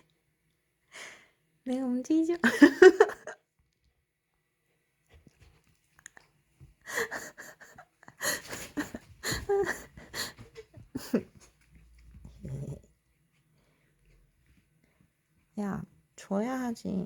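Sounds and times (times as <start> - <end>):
puppy breathy vocal noises: 12.2 - 12.9.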